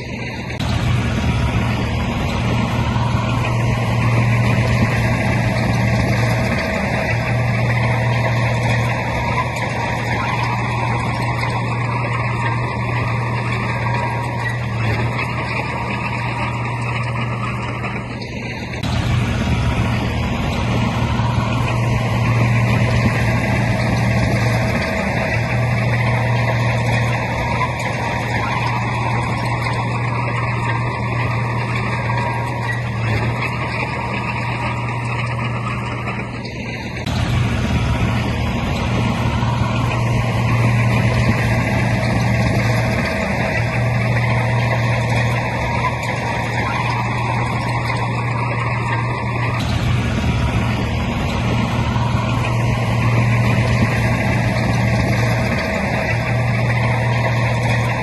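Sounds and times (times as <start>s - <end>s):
diesel machinery engine drone: 0.0s - 58.0s.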